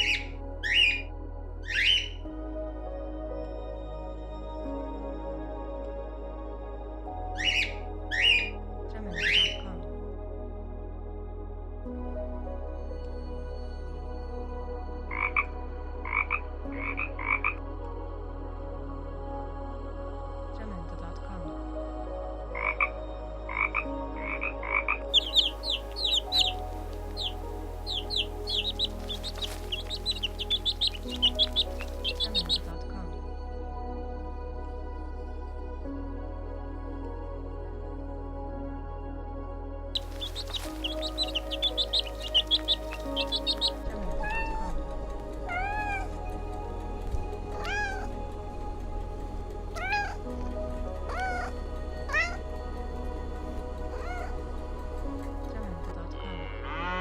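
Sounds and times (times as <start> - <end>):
background music: 0.0 - 57.0
frog croaking: 22.6 - 22.8, 23.5 - 32.7, 40.0 - 44.6
chicks peeping: 25.1 - 32.7, 40.0 - 44.7
cat meowing: 25.2 - 32.6, 40.0 - 44.7, 45.5 - 46.1, 47.6 - 48.1, 49.8 - 50.2, 51.1 - 51.5.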